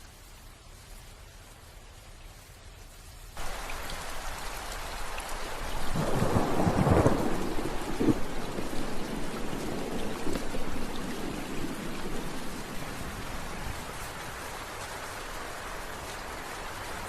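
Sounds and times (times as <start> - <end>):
steady rain: 0.0 - 17.0
low rumble of thunder: 5.6 - 14.2.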